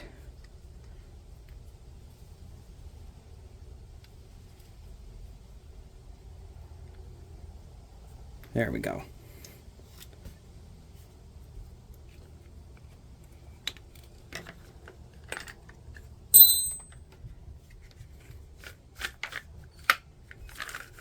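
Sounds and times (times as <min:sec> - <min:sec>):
hand tools clicking and tapping: 0:16.4 - 0:17.0
metal piece clinking on hard surface: 0:16.4 - 0:17.0.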